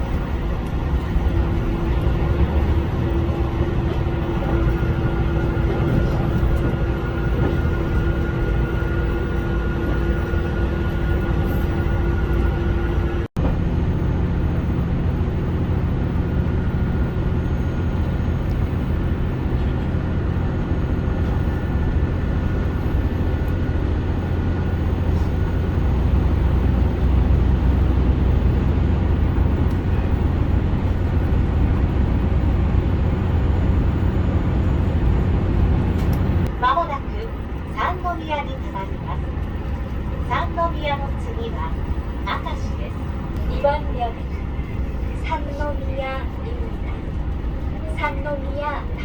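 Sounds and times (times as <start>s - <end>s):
diesel railcar engine drone: 0.0s - 49.0s
rail running noise: 0.0s - 49.0s.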